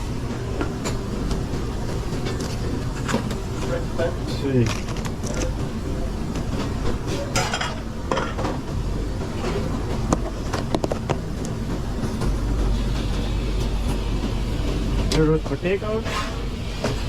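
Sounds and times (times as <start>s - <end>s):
steady low hum: 0.0s - 17.0s
pans and utensils clattering: 7.1s - 8.6s.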